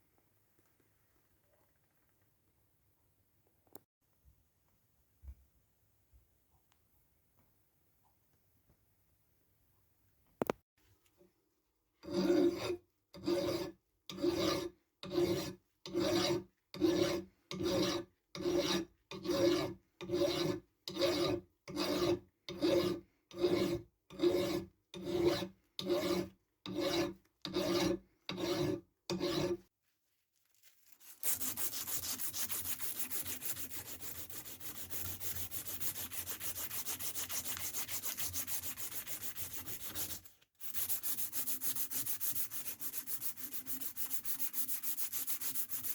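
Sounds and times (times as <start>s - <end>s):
hand file rasping on steel: 12.0s - 29.6s, 31.0s - 45.9s.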